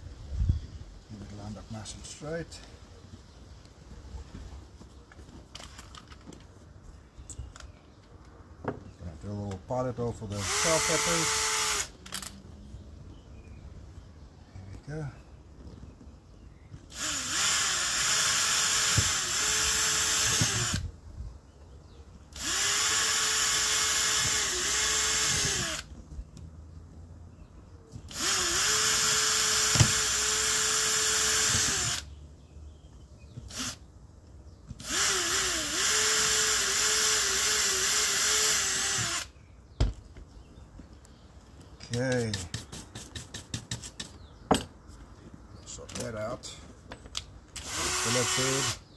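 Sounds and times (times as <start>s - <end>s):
power drill whining: 10.4s - 12.3s, 16.9s - 20.8s, 22.4s - 25.9s, 28.1s - 32.1s, 33.5s - 33.8s, 34.8s - 39.3s, 47.6s - 48.8s.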